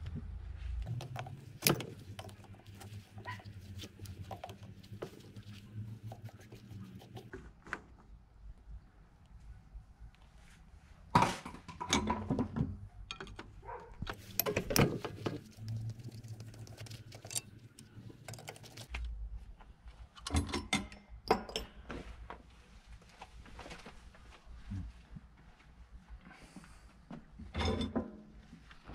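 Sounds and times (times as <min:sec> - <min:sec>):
metal tools clinking and knocking: 0:14.1 - 0:18.9.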